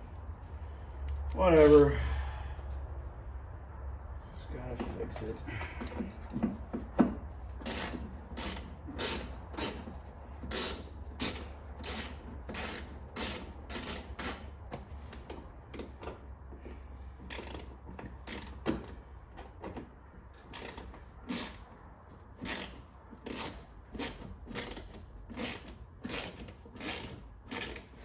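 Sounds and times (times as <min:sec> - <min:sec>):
steady low hum: 0:00.0 - 0:11.9
hand ratchet clicking: 0:07.6 - 0:14.5, 0:17.3 - 0:18.6, 0:20.5 - 0:21.6, 0:22.4 - 0:28.0.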